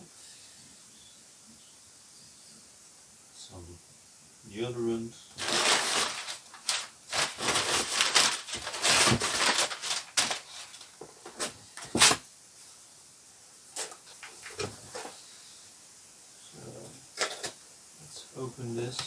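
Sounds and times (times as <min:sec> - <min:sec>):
packaging rustling and crinkling: 0:05.3 - 0:12.2, 0:13.7 - 0:15.2.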